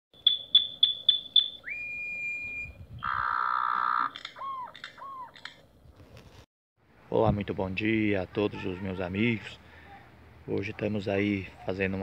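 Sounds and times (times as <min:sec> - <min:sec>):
bird song: 0:00.2 - 0:05.5.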